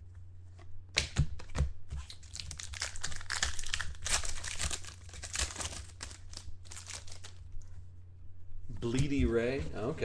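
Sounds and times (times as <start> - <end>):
low steady hum: 0.0 - 10.0
card wrapper crinkling and rustling: 2.0 - 7.5.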